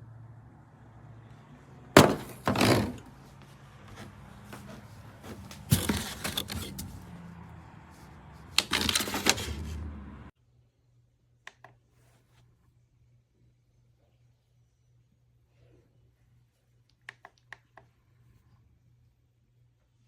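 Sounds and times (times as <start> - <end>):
handling clicks and knocks: 2.0 - 3.2, 3.9 - 7.1, 8.5 - 9.7.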